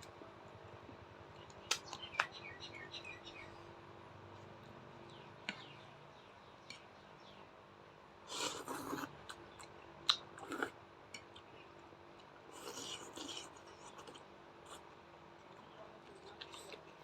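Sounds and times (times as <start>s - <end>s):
person chewing food: 8.3s - 17.0s.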